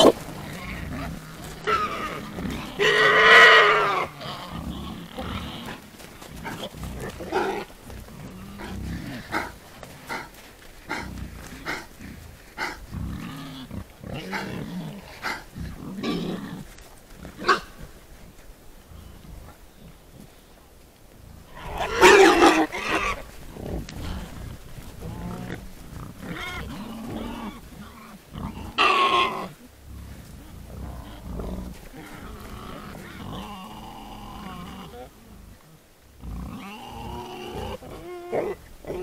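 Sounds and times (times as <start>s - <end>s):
snuffling clicks: 0.0s - 2.9s, 4.3s - 18.4s
wild boar grunting: 0.0s - 39.0s.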